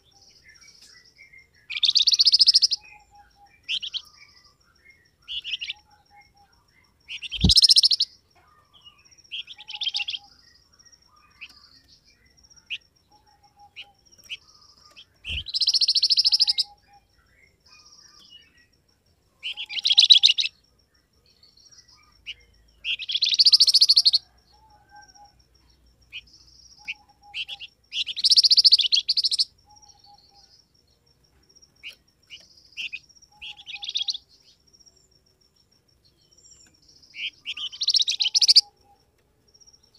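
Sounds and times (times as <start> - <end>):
bird calling buzzy high calls: 7.1 - 8.2.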